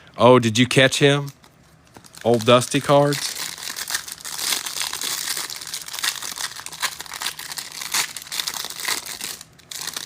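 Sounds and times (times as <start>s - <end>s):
card pack wrappers crinkling and tearing: 1.0s - 10.0s.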